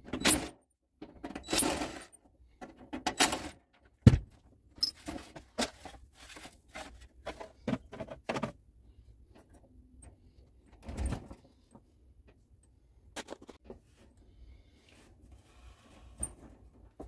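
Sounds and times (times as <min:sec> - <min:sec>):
heavy thump: 0:04.0 - 0:04.3.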